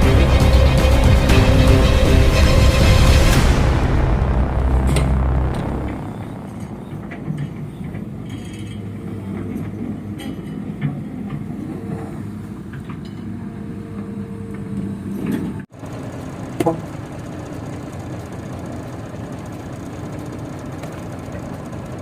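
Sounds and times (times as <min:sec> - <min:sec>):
heavy diesel engine running: 0:00.0 - 0:08.3, 0:15.7 - 0:22.0.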